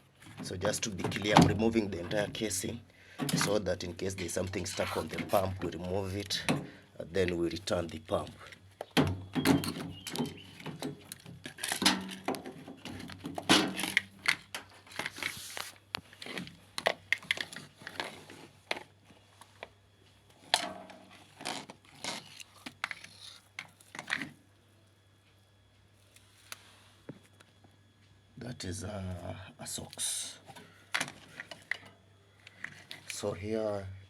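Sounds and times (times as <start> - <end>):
plastic parts clicking and knocking: 8.1 - 18.9, 30.5 - 33.2.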